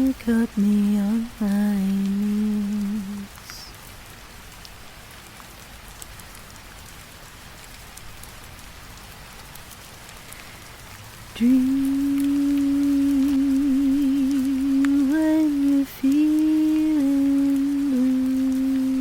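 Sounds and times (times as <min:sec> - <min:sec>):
steady rain patter: 0:00.0 - 0:19.0.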